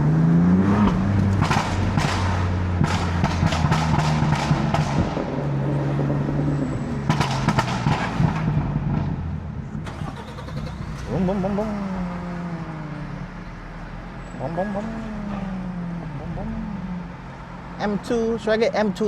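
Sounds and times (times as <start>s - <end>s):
exhaust crackles and pops: 0.0s - 11.9s
car exhaust note rising: 0.0s - 17.8s.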